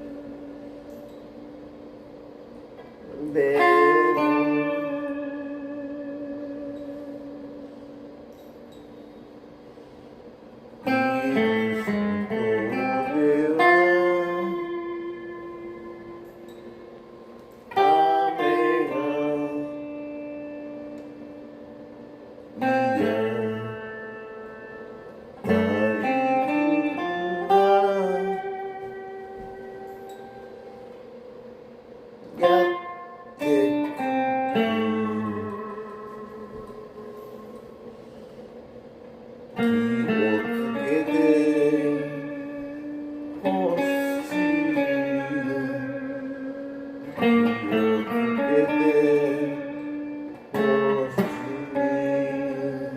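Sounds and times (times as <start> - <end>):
guitar chords ringing: 0.0 - 52.9
plucked string instrument: 39.5 - 52.9.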